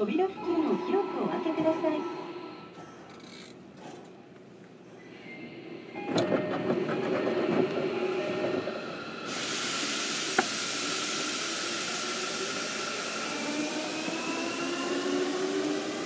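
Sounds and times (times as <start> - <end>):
hiss of air: 9.1 - 16.0.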